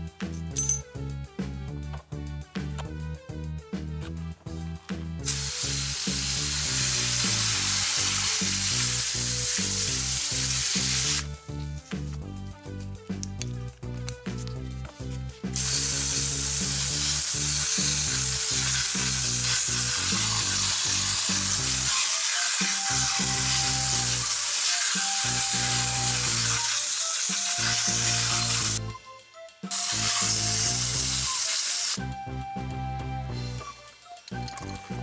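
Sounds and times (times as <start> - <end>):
hose nozzle spraying water: 5.2 - 11.3, 15.5 - 28.8, 29.7 - 32.0.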